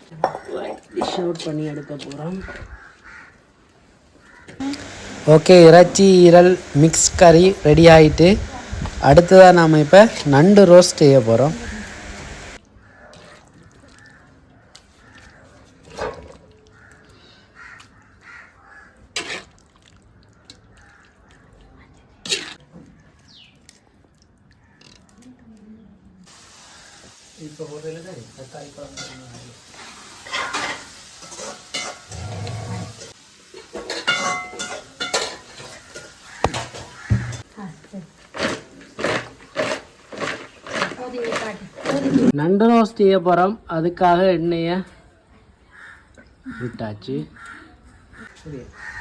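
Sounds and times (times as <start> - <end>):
crows cawing: 1.6 - 3.5, 16.7 - 19.0, 36.3 - 37.4, 45.7 - 49.0
metal pots clanking: 33.7 - 37.5.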